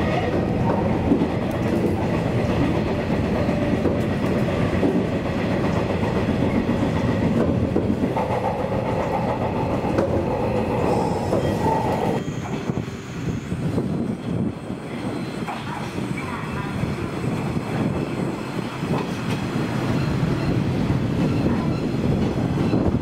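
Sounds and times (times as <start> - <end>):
train running noise: 0.0 - 23.0
wheels clacking over rail joints: 0.2 - 12.2.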